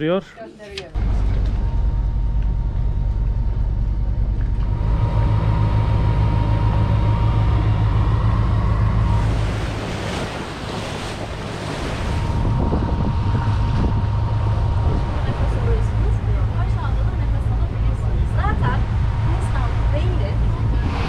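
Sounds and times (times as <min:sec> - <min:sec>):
boat engine humming: 0:00.0 - 0:21.0
water rushing past: 0:07.8 - 0:21.0
wind on microphone: 0:07.9 - 0:16.3, 0:17.5 - 0:21.0.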